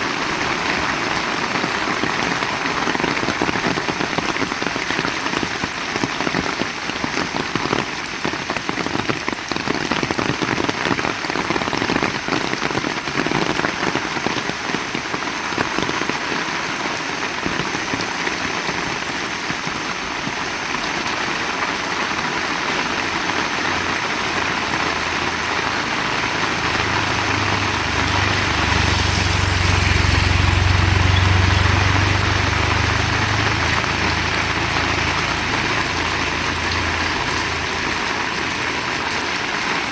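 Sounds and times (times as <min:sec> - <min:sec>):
heavy rain: 0:00.0 - 0:39.9
low rumble: 0:25.4 - 0:37.9.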